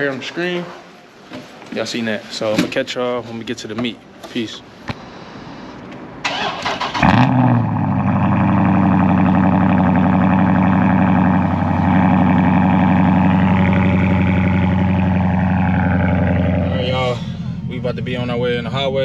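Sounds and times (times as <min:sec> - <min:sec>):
car engine starting and idling: 0:04.9 - 0:19.0.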